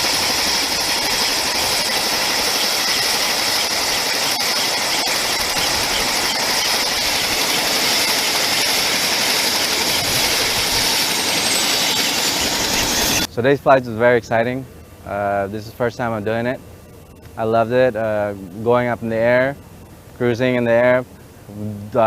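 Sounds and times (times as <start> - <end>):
helicopter engines whining: 0.0 - 22.0.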